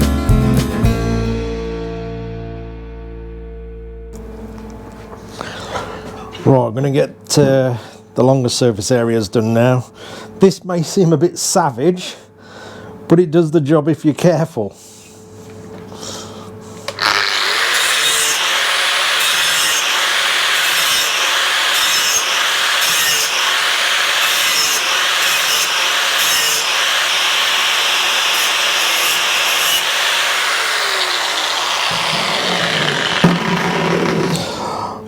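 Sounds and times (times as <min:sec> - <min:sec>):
angle grinder grinding metal: 0:16.9 - 0:34.8.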